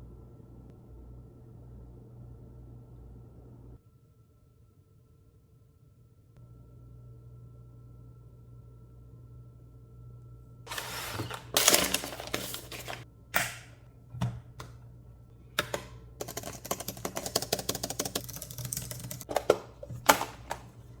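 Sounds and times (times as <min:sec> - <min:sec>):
packaging rustling: 0:10.7 - 0:13.0.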